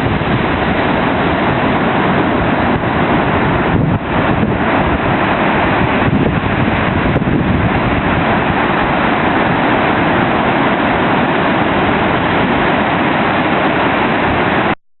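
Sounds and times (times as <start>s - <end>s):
waves breaking: 0.0s - 14.8s
wind buffeting microphone: 0.0s - 14.8s.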